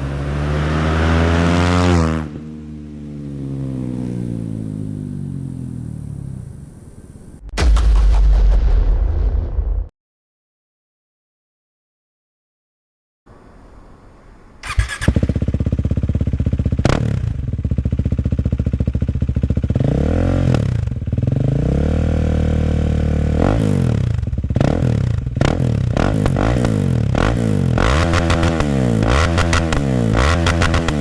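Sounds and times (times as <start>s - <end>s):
motorcycle throttle blips: 14.6s - 21.4s, 23.4s - 31.0s
motorcycle engine idling: 14.6s - 25.4s
motorcycle engine starting: 14.6s - 31.0s.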